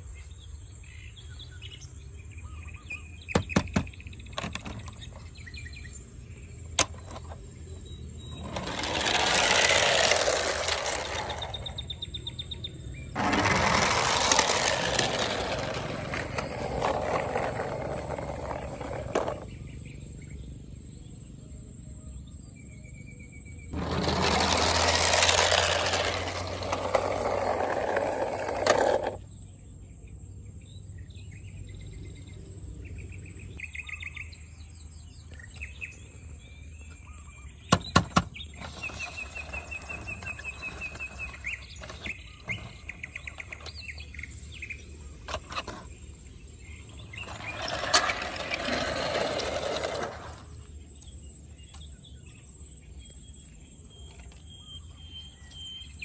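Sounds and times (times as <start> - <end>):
small birds chirping: 0.0 - 24.4, 25.6 - 56.0.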